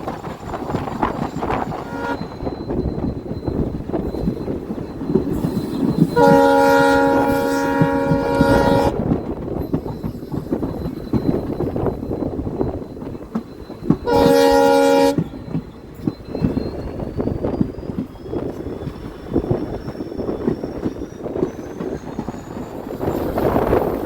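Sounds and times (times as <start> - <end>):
moving train rumble and clatter: 0.0 - 24.0
locomotive horn: 1.8 - 2.3, 6.2 - 9.0, 14.1 - 15.2.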